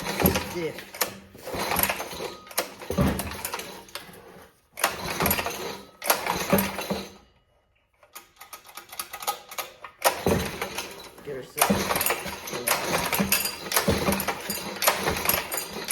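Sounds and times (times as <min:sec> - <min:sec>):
recoil starter yanked: 0:00.0 - 0:04.2, 0:08.1 - 0:15.9
engine turning over clattering: 0:00.0 - 0:07.2, 0:08.6 - 0:15.9.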